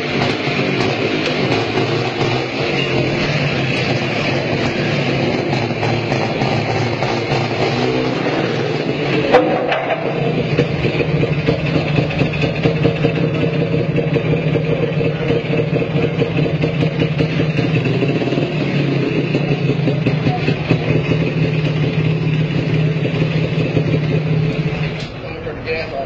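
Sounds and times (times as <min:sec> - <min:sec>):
car engine rough rattle: 0:00.0 - 0:26.0.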